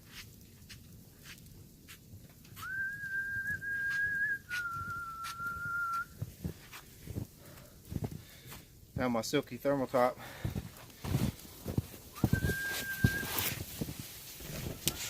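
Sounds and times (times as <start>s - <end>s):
person whistling long notes: 2.6s - 6.2s, 12.1s - 13.6s.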